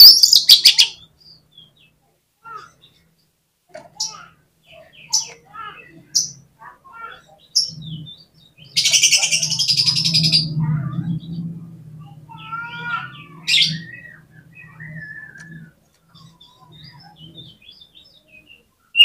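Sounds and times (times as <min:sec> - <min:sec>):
bird singing: 0:00.0 - 0:03.4, 0:04.0 - 0:19.0.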